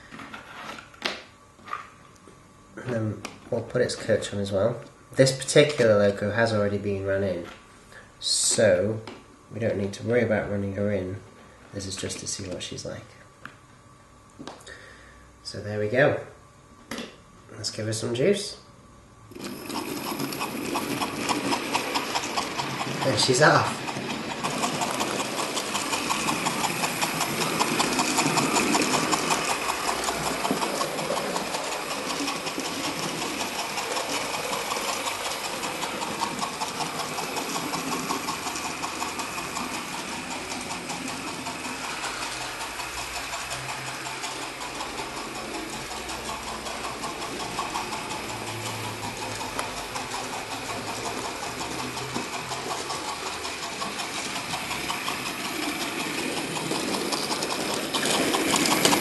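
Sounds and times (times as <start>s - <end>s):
model train motor whirring: 19.3s - 59.0s
fast even ticking: 19.7s - 59.0s.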